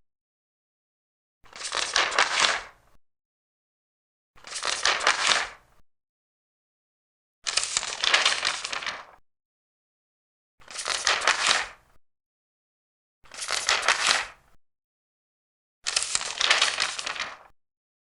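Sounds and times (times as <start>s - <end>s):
paper pages turning: 1.5s - 2.8s, 4.4s - 5.6s, 7.5s - 9.2s, 10.6s - 11.8s, 13.3s - 14.4s, 15.8s - 17.5s.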